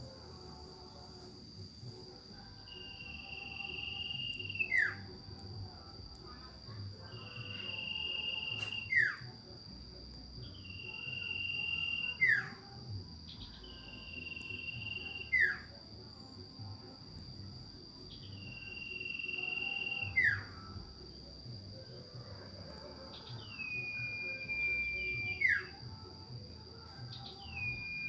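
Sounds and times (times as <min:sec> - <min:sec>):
high insect-like tone: 0:00.0 - 0:28.0
bird whistling calls: 0:02.9 - 0:05.0, 0:07.3 - 0:09.2, 0:10.7 - 0:12.5.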